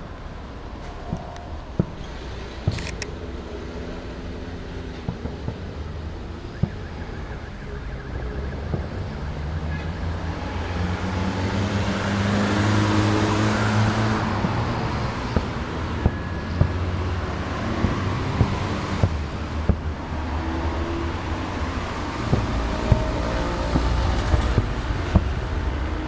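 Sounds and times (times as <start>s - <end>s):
engine drone: 0.0s - 26.0s
fireworks bangs: 0.9s - 3.0s, 5.0s - 10.6s, 13.6s - 26.0s.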